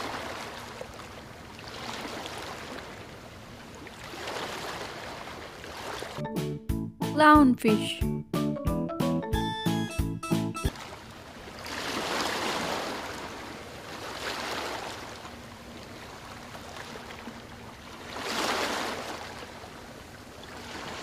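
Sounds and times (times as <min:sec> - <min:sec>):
children's music: 0:06.2 - 0:10.7.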